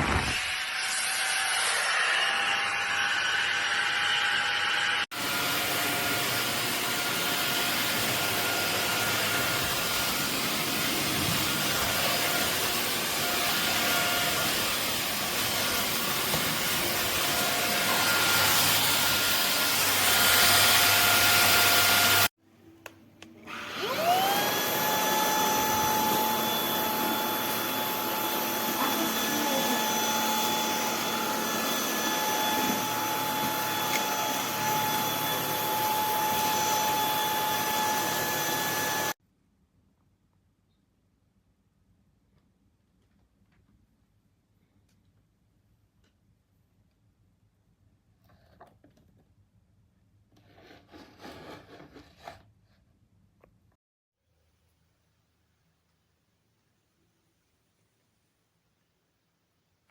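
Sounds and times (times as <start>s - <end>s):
vacuum cleaner motor running: 1.6s - 22.3s, 23.4s - 39.2s.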